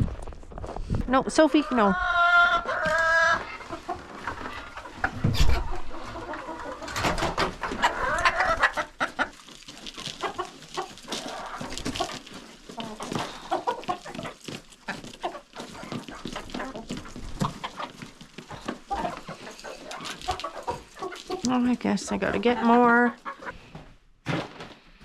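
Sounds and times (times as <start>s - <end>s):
chickens clucking: 1.4s - 23.7s.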